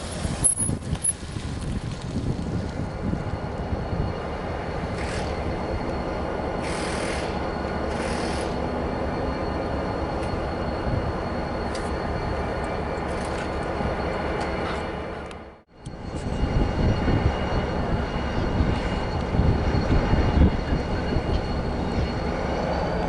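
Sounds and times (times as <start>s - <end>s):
diesel locomotive running: 0.0s - 23.0s
air hissing: 6.6s - 8.6s.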